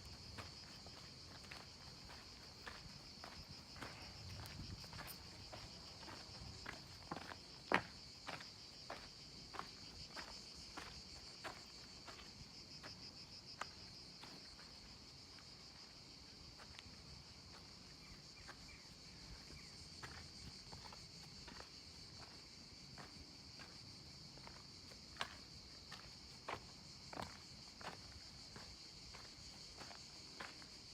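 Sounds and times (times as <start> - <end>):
footsteps scuffing on path: 0.0 - 13.0, 19.4 - 30.8
insects chirring: 0.0 - 30.9.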